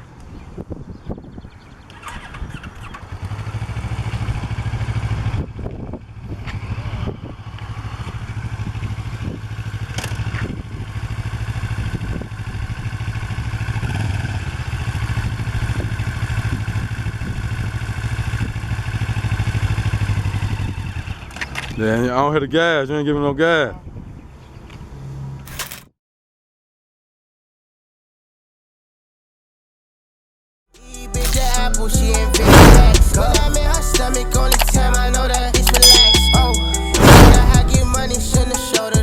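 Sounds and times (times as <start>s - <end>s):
motorcycle engine idling: 1.7s - 21.4s
sharp clicks: 34.5s - 34.8s.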